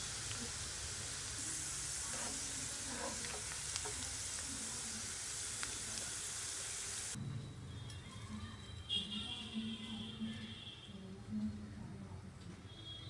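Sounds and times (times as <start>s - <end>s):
onions sizzling in oil: 0.0s - 7.2s.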